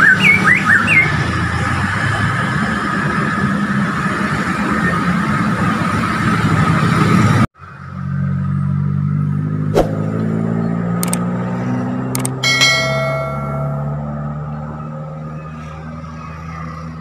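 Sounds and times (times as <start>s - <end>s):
engine and traffic hum: 0.0s - 17.0s
click: 11.0s - 11.2s, 12.1s - 12.4s.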